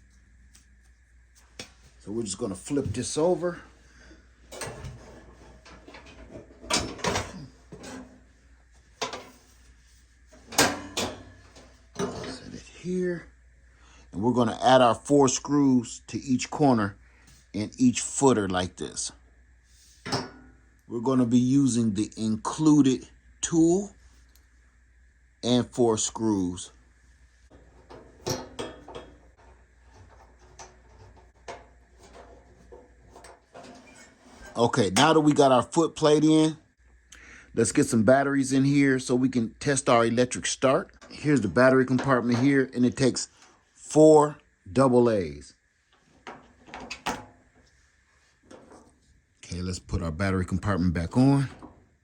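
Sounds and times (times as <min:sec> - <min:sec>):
heater clunks and scrapes: 0:02.2 - 0:12.7, 0:19.8 - 0:20.6, 0:27.4 - 0:35.6, 0:41.0 - 0:43.6, 0:45.9 - 0:47.7, 0:48.4 - 0:49.1, 0:50.7 - 0:52.0.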